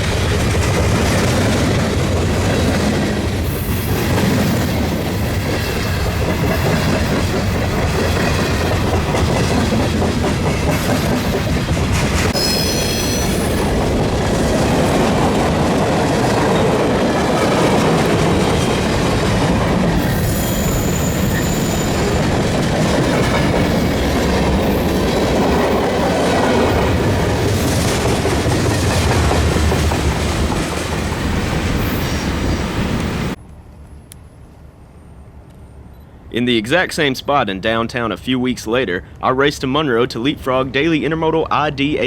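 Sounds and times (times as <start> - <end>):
train wheels clacking over rail joints: 0.0 - 31.7
high-pitched wheel squeals: 12.3 - 13.7, 20.0 - 22.2.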